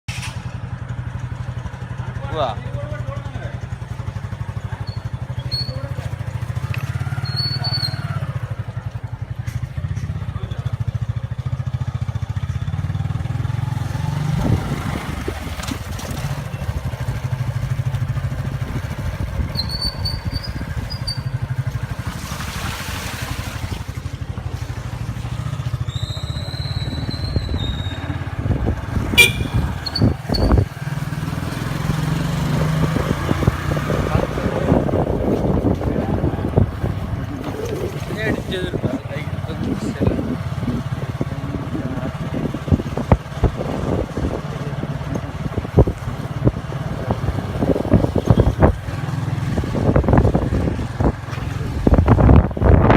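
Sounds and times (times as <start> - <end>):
motorcycle engine running: 0.1 - 22.6, 23.2 - 52.9
short high-pitched chirps: 29.2 - 30.5.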